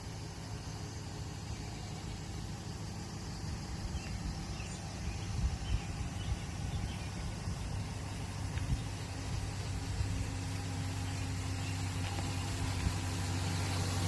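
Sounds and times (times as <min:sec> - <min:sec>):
pickup truck engine idling: 0:00.0 - 0:14.0.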